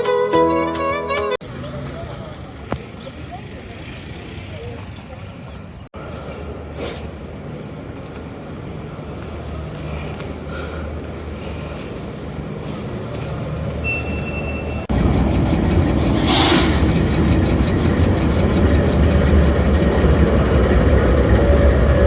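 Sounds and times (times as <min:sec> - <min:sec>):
train rumbling on rails: 0:05.6 - 0:22.0
brief hiss: 0:06.7 - 0:07.2, 0:16.0 - 0:17.1.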